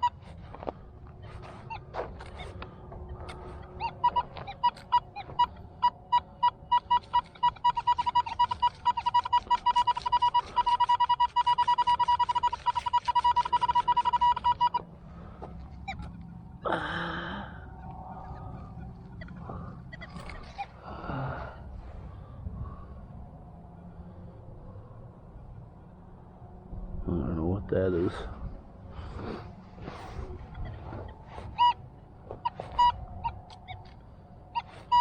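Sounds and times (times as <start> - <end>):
metal detector beeping: 0.0 - 16.9, 17.8 - 20.7, 29.0 - 35.0.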